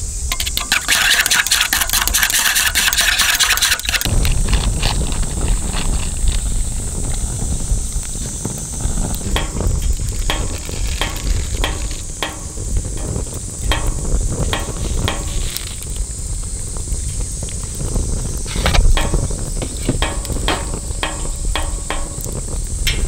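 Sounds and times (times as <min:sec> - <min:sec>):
campfire crackling and popping: 0:00.0 - 0:23.0
insects chirping: 0:00.0 - 0:23.0.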